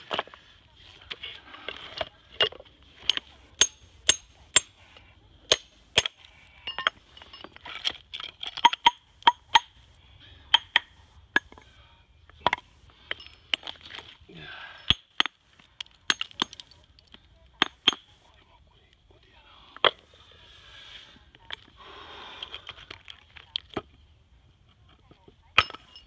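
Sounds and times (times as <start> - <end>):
hammer striking stone: 3.1 - 4.8, 5.5 - 7.0, 10.5 - 11.6, 17.6 - 18.1, 25.6 - 26.0.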